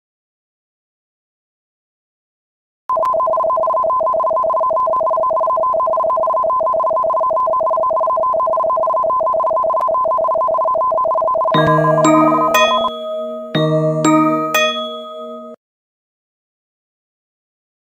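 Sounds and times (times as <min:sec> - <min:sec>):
electronic two-tone alarm: 0:02.9 - 0:15.6.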